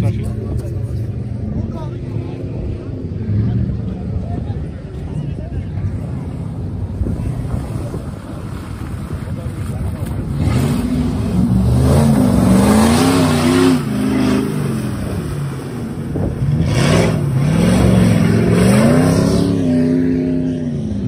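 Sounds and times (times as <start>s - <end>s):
engine revving hard: 10.4s - 15.1s, 16.4s - 20.6s.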